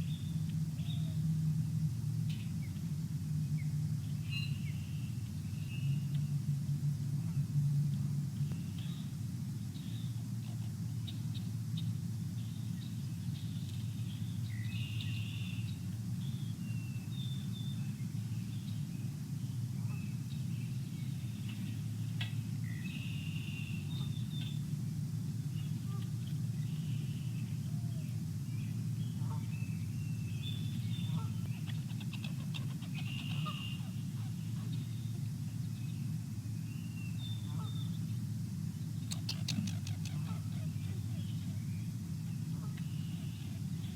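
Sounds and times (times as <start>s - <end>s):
steady low rumble: 0.0s - 43.9s
birds chirping and calling: 30.5s - 34.9s, 39.1s - 41.5s.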